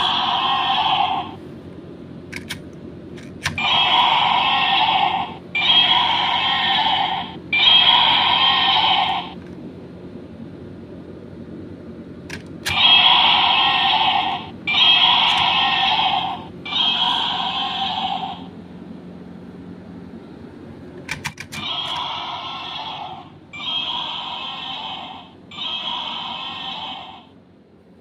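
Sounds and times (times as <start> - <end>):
clicks: 2.3 - 3.7
buzzy electronic toy bursts: 12.7 - 18.4, 21.7 - 27.2.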